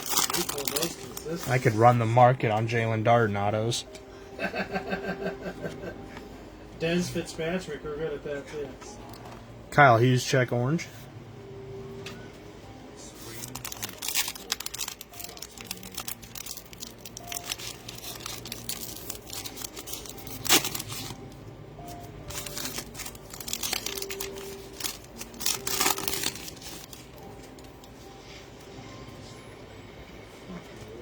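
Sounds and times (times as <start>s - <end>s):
plastic wrappers tearing and crinkling: 0.0s - 1.8s, 13.2s - 27.7s.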